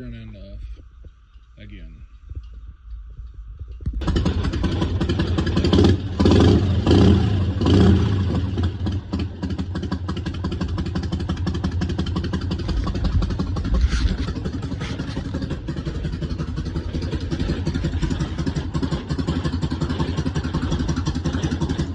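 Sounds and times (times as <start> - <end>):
motorcycle engine idling and blipping: 0.0 - 21.9.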